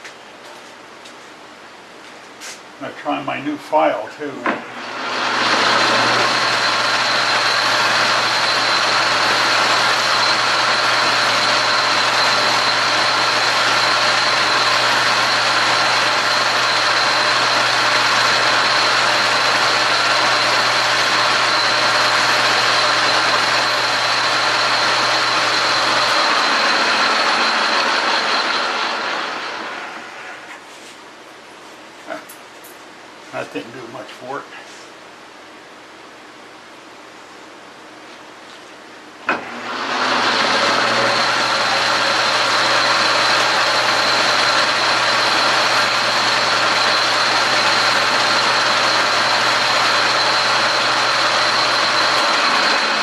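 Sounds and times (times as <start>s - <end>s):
lathe motor hum: 4.5s - 30.3s, 39.3s - 53.0s
file scraping spinning metal: 4.8s - 29.6s, 39.3s - 53.0s.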